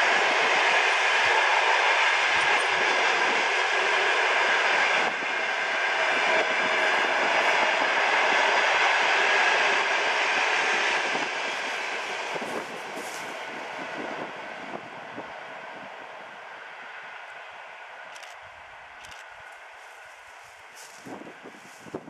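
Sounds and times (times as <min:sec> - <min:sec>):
train wheels rushing on rail: 0:00.0 - 0:22.0.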